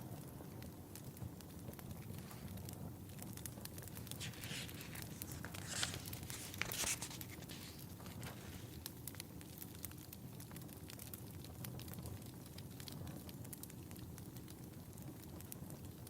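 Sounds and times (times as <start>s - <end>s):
fireplace crackling: 0.2s - 16.0s
book pages turning: 3.9s - 8.8s.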